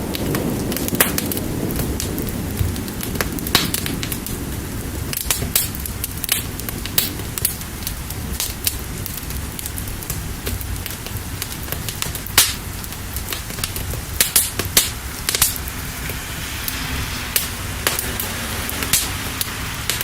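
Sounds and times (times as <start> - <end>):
fire crackling and popping: 0.0 - 20.0
rain hiss: 0.0 - 20.0.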